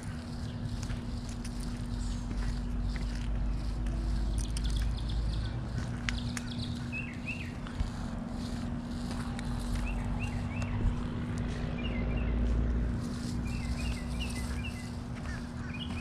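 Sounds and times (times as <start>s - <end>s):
bird chirping: 0.0s - 8.8s, 9.5s - 16.0s
constant hum: 0.0s - 16.0s
steady low rumble: 0.0s - 16.0s.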